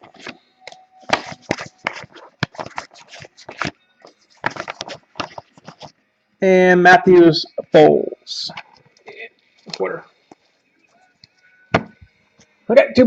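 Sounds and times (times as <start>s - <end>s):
cards being flicked through: 4.4s - 5.9s.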